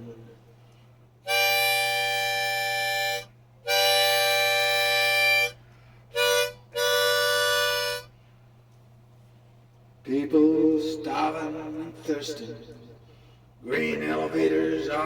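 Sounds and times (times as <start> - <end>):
harmonica chords: 1.2 - 8.2.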